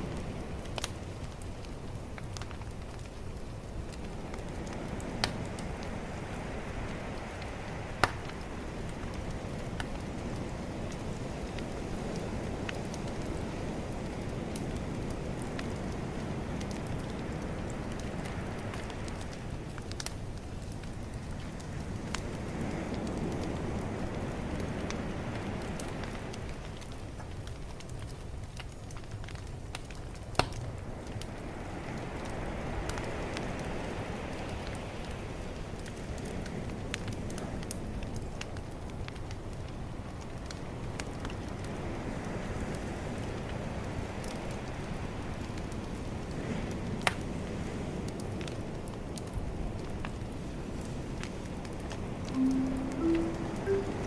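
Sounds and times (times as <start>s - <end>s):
bonfire crackling: 0.0s - 53.9s
calm ocean waves: 3.6s - 27.0s, 30.8s - 37.9s, 39.8s - 54.0s
ocean wave washing in: 52.4s - 54.0s.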